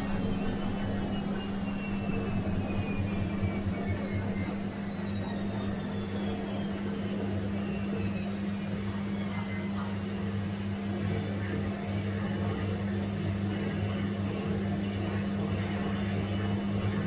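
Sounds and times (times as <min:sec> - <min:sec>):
washing machine humming: 0:00.0 - 0:11.4
high motor whine: 0:00.0 - 0:11.7.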